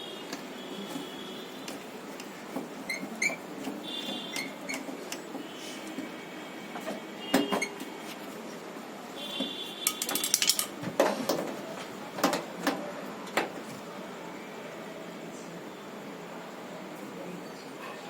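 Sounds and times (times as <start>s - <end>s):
hardware rattling: 9.9s - 10.8s
metal tools clinking: 9.9s - 10.8s.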